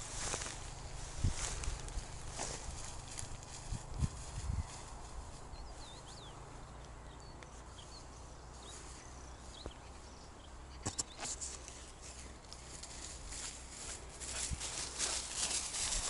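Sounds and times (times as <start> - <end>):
high birdsong chirps: 0.0 - 3.3, 4.3 - 16.0.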